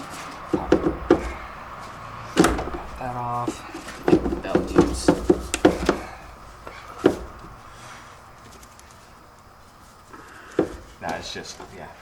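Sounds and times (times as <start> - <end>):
clicks and knocks of car parts: 0.0 - 7.7, 10.3 - 11.7.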